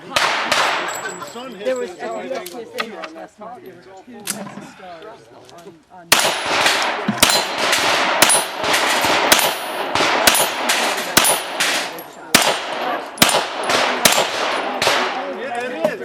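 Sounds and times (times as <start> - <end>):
handgun shots: 6.1 - 15.2.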